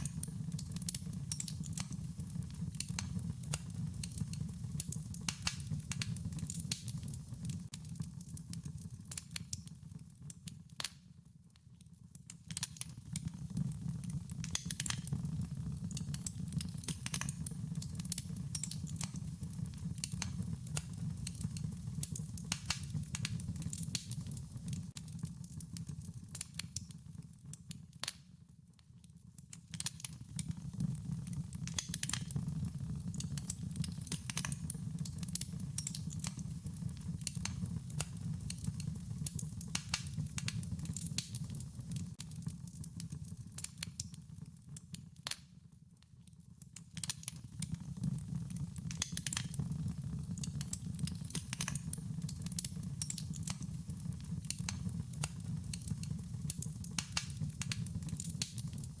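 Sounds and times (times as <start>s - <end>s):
wood fire crackling: 0.0s - 59.0s
low rumble of flames: 13.2s - 25.1s.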